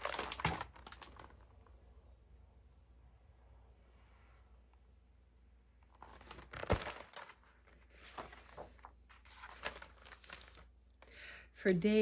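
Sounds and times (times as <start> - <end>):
book pages turning: 0.0 - 1.4, 5.9 - 10.7
paper rustling: 0.0 - 1.4, 6.0 - 10.7.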